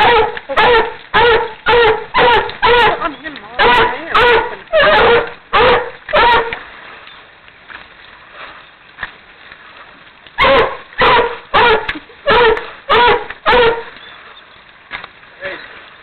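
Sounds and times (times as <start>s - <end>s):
dog barking: 0.0s - 3.0s, 3.6s - 6.6s, 10.4s - 13.9s.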